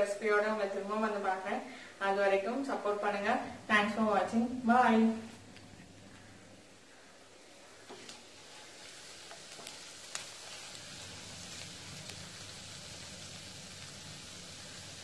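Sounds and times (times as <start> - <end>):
squid frying with faint sizzle: 6.7 - 15.0.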